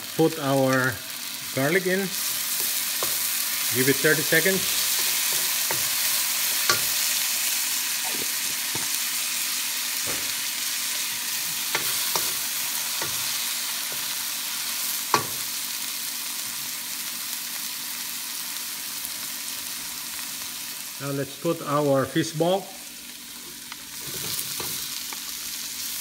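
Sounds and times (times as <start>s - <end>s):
onions sizzling in oil: 0.0s - 26.0s
wooden spatula scraping a pan: 23.4s - 24.9s.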